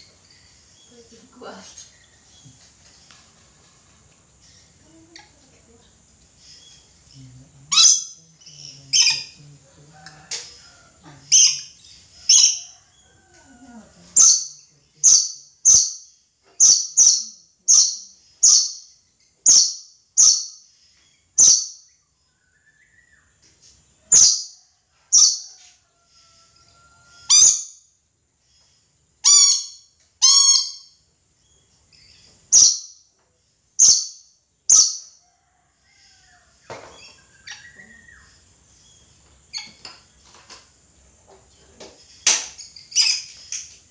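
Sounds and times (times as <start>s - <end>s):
parrot high-pitched calls: 26.6s - 27.8s, 29.2s - 31.0s.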